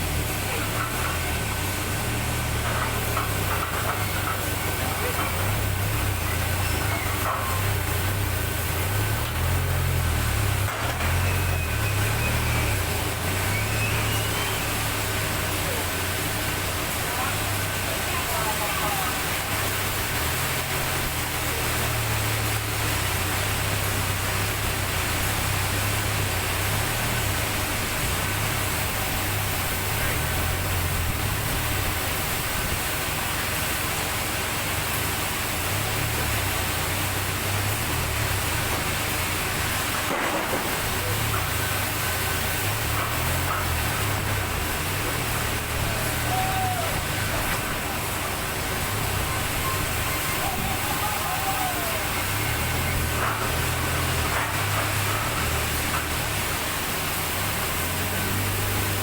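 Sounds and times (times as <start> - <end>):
constant noisy hiss: 0.0 - 59.0
sawmill machinery hum: 0.0 - 59.0.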